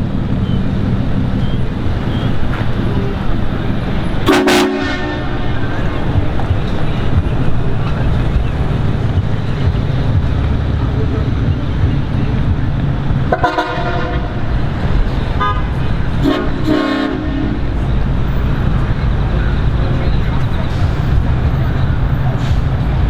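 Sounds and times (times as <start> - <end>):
low rumble of vehicles: 0.0 - 23.0
vehicle horn honking: 1.4 - 6.0, 13.3 - 14.6, 15.4 - 17.8.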